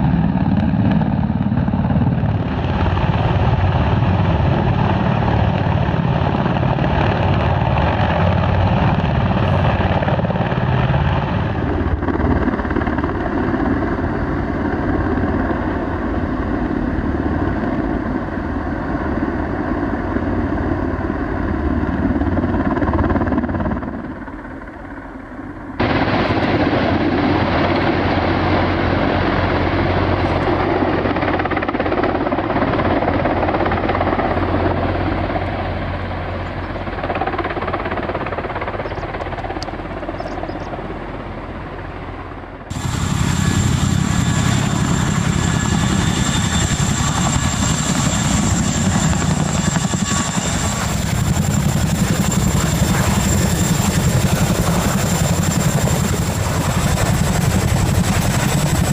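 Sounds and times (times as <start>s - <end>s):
helicopter engine and rotor: 0.0s - 58.9s
steady high whine: 33.5s - 58.9s.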